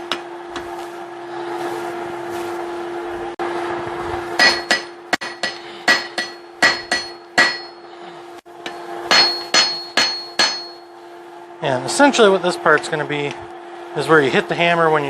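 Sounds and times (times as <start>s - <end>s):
steady hum: 0.0s - 15.0s
hammer ringing on anvil: 4.4s - 7.9s, 8.6s - 11.0s.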